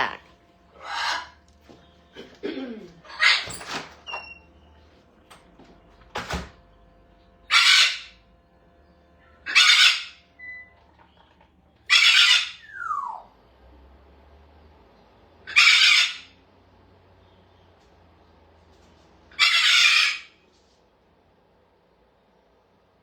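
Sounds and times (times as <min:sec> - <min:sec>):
parrots squawking: 0:00.0 - 0:01.4, 0:03.0 - 0:03.8, 0:07.4 - 0:08.2, 0:09.4 - 0:10.7, 0:11.9 - 0:13.3, 0:15.4 - 0:16.4, 0:19.3 - 0:20.5.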